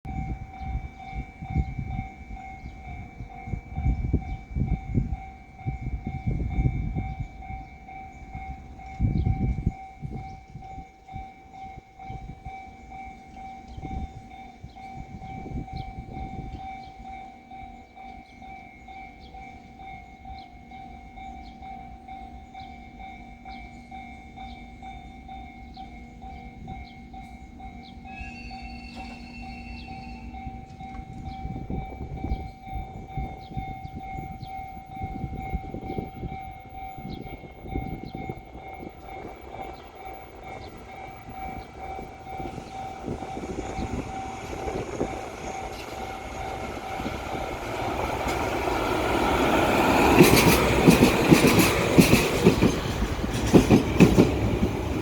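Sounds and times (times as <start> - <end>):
steady high tone: 26.5 - 55.0
train wheels clattering over rail joints: 43.7 - 55.0.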